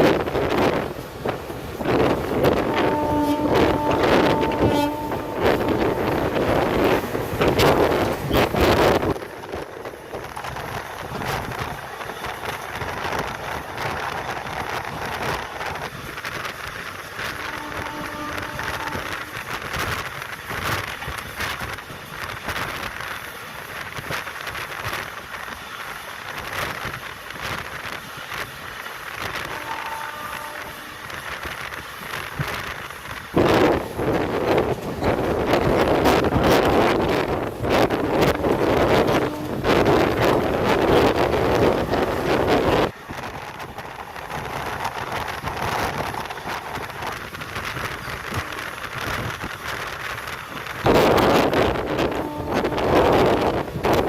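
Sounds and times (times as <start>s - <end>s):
train clatter: 0.0s - 54.0s
train wheels on rails: 0.0s - 54.0s
wind buffeting microphone: 0.0s - 54.0s.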